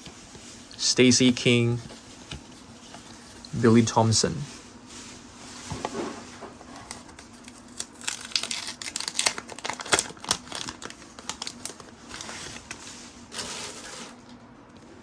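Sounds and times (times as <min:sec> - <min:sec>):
trading cards rustling: 0:06.6 - 0:14.1.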